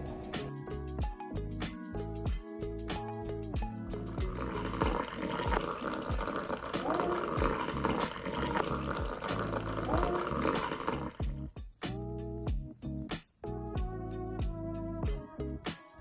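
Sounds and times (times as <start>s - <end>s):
faint background music: 0.0s - 16.0s
water running: 3.9s - 11.4s.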